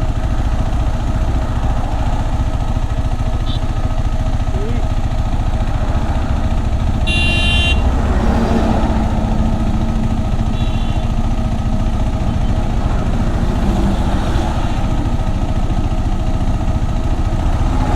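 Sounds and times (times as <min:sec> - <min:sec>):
motorcycle engine running: 0:00.0 - 0:17.9
high-pitched horn honking: 0:03.4 - 0:04.0, 0:06.8 - 0:08.6, 0:09.4 - 0:11.4.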